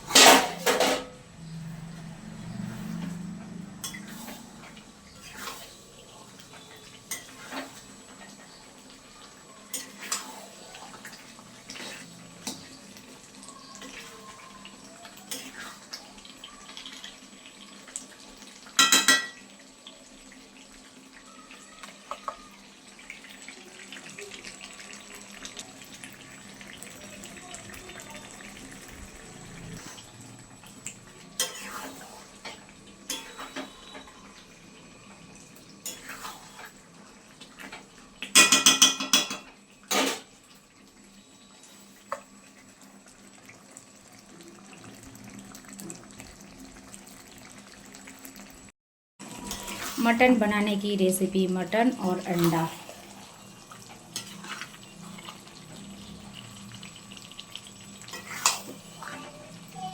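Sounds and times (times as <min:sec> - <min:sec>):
metal utensils scraping in pot: 0:05.2 - 0:05.9, 0:31.4 - 0:34.1, 0:35.8 - 0:36.8, 0:52.1 - 0:55.5, 0:58.0 - 0:59.2.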